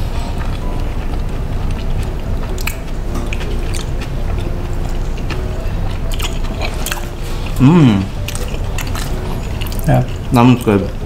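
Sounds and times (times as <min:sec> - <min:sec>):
steady background hum: 0:00.0 - 0:11.0
chewing: 0:00.2 - 0:11.0
mouth clicks and smacks: 0:02.5 - 0:04.0.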